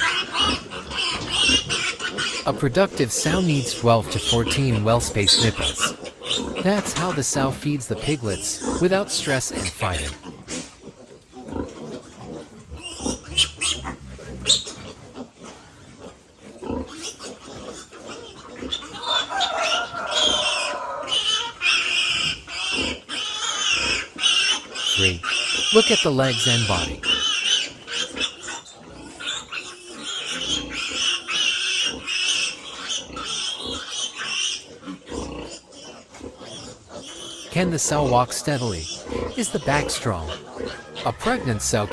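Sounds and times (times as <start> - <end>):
short sharp pig sounds: 0.0 - 10.9, 24.8 - 27.3, 37.4 - 41.9
pigs grunting: 0.0 - 41.9.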